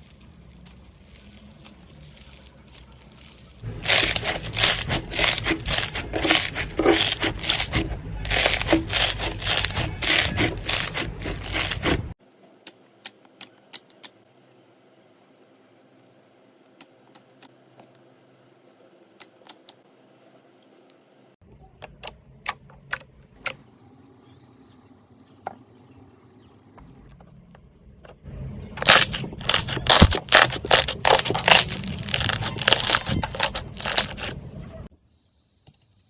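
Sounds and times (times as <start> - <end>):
slime clicking and crackling: 0.0 - 12.1, 28.8 - 34.4.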